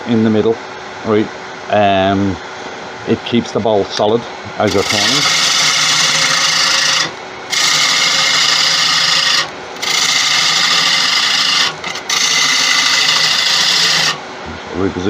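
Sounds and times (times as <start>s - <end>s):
lathe humming: 4.5s - 14.4s
gouge cutting spinning wood: 4.7s - 14.2s.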